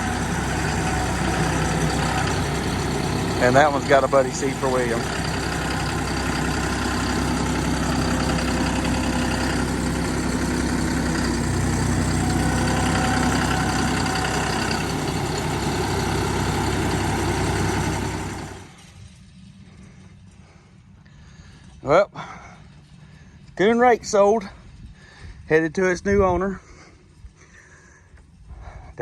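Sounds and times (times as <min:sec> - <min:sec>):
diesel tractor engine idling: 0:00.0 - 0:28.9.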